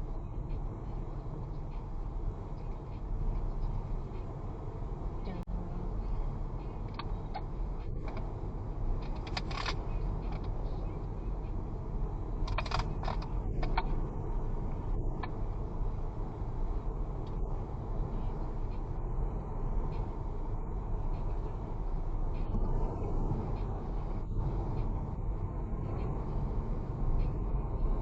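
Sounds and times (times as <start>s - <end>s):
vehicle engine and road noise: 0.0s - 28.0s
sharp clicks or rattles: 9.0s - 10.5s, 12.4s - 13.9s.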